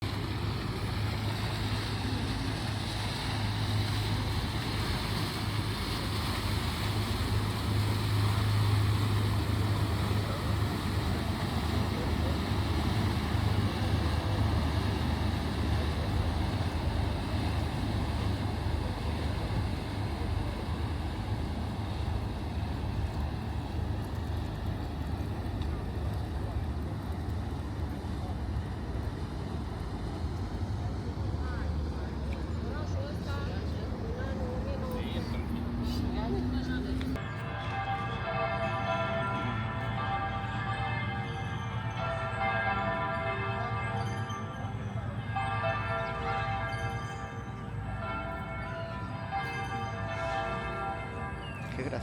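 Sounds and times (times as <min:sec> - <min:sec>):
low engine drone: 0:00.0 - 0:43.7
murmur of voices: 0:30.8 - 0:37.2.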